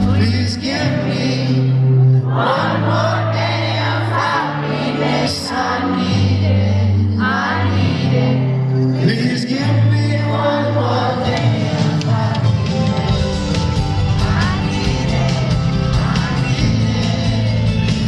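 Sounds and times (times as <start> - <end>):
person singing: 0.0 - 18.0
low bass chords: 12.1 - 18.0.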